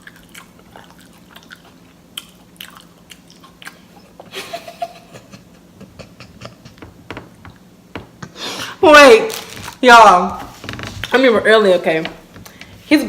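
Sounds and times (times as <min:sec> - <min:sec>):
sandwich chewing and biting: 0:00.0 - 0:04.3.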